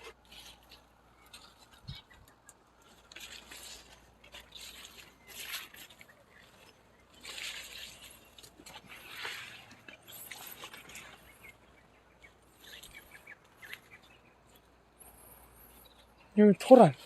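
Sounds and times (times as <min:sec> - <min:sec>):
footsteps through grass: 0:00.0 - 0:11.8
leaves brushing: 0:00.0 - 0:11.8
faint bird chirps: 0:03.6 - 0:16.4.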